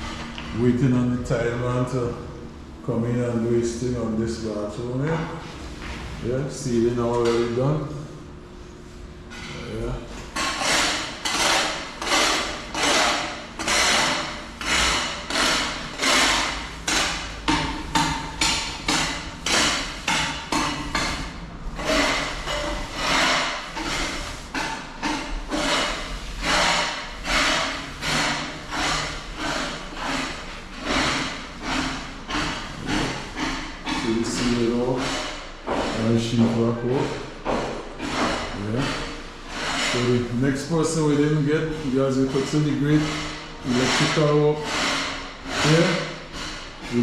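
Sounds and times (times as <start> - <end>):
hand tool strokes on surface: 8.9 - 47.0.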